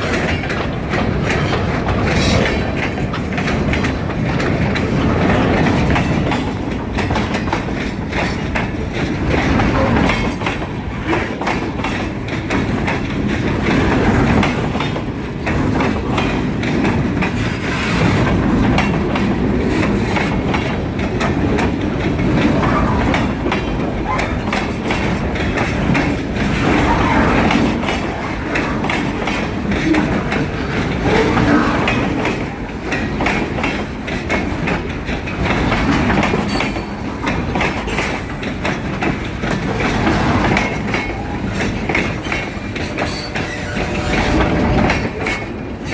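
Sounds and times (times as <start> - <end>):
train wheels clattering on rails: 0.0 - 45.9.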